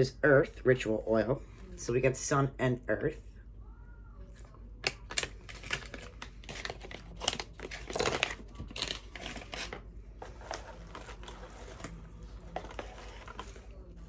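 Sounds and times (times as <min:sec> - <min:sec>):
packaging crinkling: 0:04.8 - 0:14.0.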